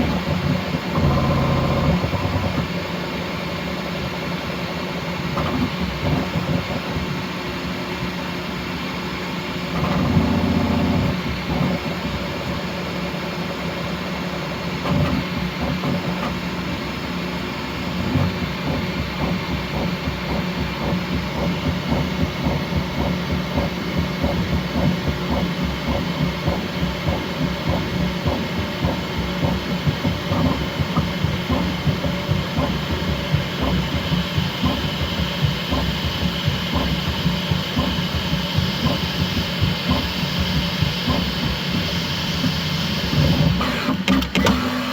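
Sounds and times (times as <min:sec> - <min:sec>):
stepper motors humming and stuttering: 0:18.0 - 0:44.3.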